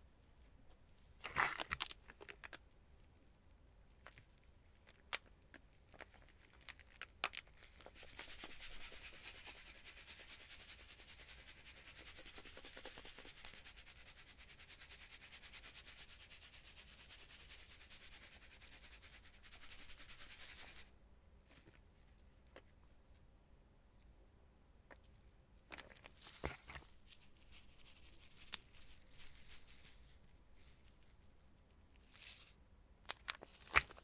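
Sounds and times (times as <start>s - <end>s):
hands rubbing in nitrile gloves: 7.9s - 20.9s, 26.1s - 31.3s.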